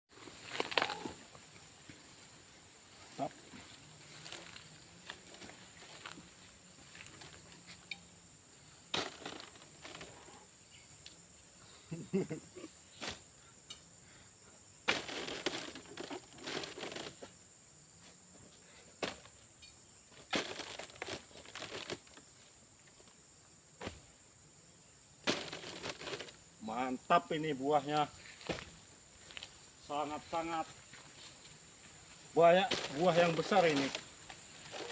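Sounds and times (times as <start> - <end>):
dry vegetation rustling and crackling: 0.1 - 7.9, 8.9 - 10.2, 14.9 - 17.2, 20.1 - 22.4, 25.2 - 26.4, 30.2 - 34.9
high-pitched insect drone: 0.3 - 14.8.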